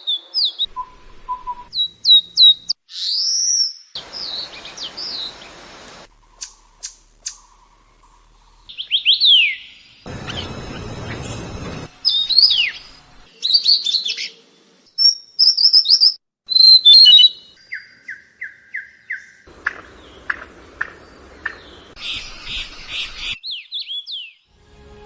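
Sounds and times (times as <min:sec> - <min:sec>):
birds chirping and warbling: 0:00.0 - 0:16.2, 0:16.8 - 0:24.5
sweeping bird whistles: 0:00.4 - 0:05.3, 0:08.7 - 0:14.3, 0:15.0 - 0:19.3
buzzy pulsing bird call: 0:08.7 - 0:14.1, 0:22.0 - 0:23.4
downslurred bird whistles: 0:15.0 - 0:17.5.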